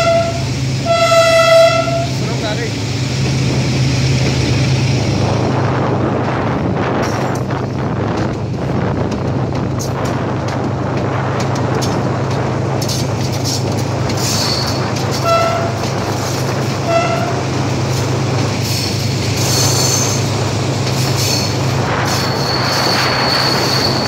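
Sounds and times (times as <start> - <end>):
train horn toots: 0.0 - 2.2, 14.5 - 15.8, 16.8 - 17.4
diesel train engine drone: 0.0 - 24.0
high wheel squeal: 14.2 - 15.8, 18.6 - 20.3, 21.1 - 24.0.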